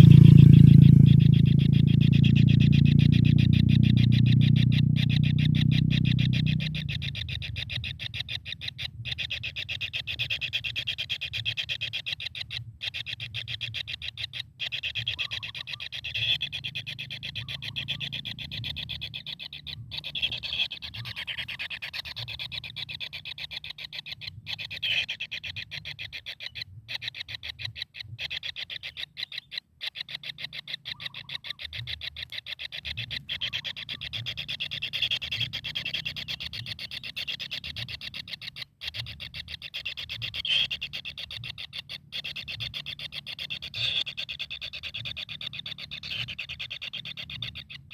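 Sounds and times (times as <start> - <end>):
low hum: 0.0 - 7.1.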